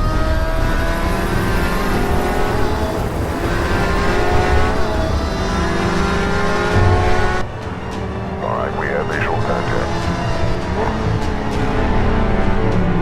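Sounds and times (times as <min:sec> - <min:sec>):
sports car engine accelerating: 0:00.0 - 0:07.4.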